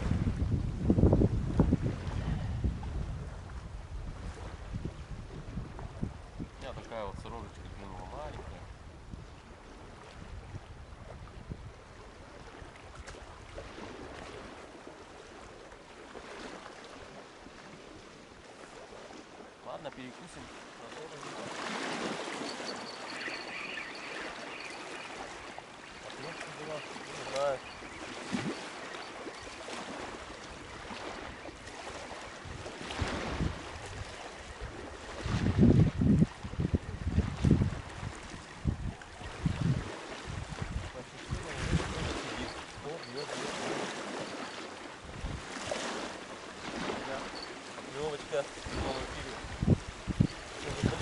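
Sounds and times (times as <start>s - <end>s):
wind buffeting microphone: 0.0s - 15.7s, 21.4s - 43.0s, 43.6s - 51.0s
wind and rain hiss: 0.0s - 51.0s
steady weather hiss: 19.3s - 32.7s.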